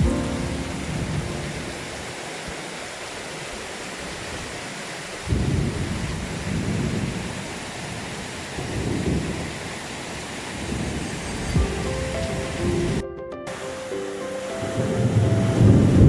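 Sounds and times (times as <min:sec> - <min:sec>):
thunder rumbling: 0:00.0 - 0:02.1, 0:05.3 - 0:13.0, 0:14.8 - 0:16.0
heavy rain falling: 0:00.0 - 0:16.0.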